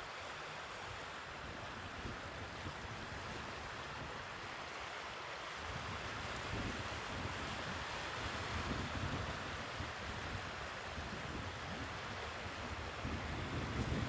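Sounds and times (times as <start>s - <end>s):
wind on microphone: 11.0s - 14.0s.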